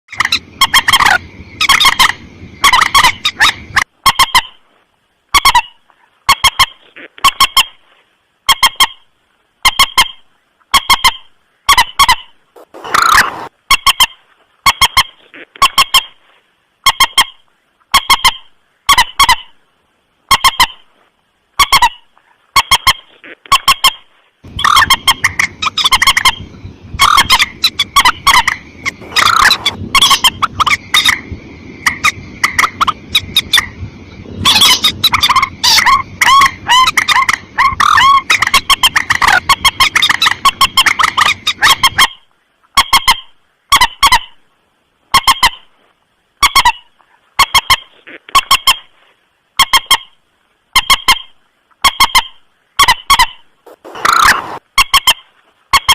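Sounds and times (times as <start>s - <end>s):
moorhen calls: 0.1s - 4.6s, 9.6s - 16.2s, 21.6s - 44.4s, 50.8s - 55.9s
low background rumble: 0.2s - 4.0s, 24.5s - 42.0s.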